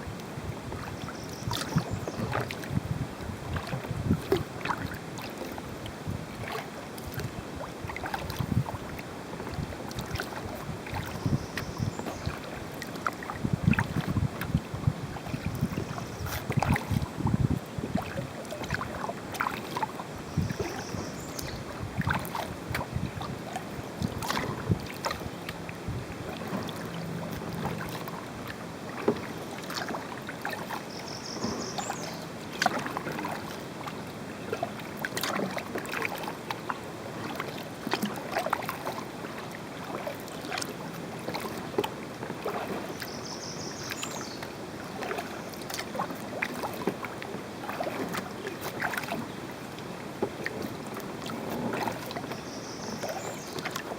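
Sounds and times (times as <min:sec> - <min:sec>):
paddle splashing water: 0:00.0 - 0:53.9.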